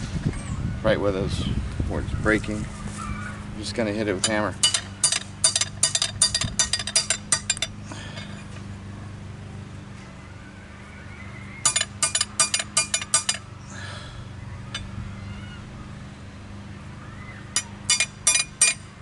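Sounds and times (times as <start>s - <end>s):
hammer striking metal rod: 4.2s - 7.7s, 11.6s - 13.4s, 17.6s - 18.8s.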